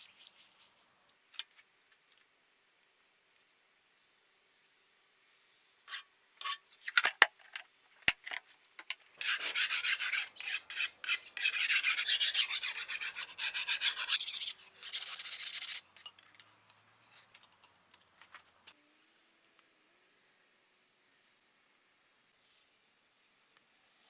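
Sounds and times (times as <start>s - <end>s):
knife sharpening rasping strokes: 5.9s - 6.6s, 9.2s - 16.3s.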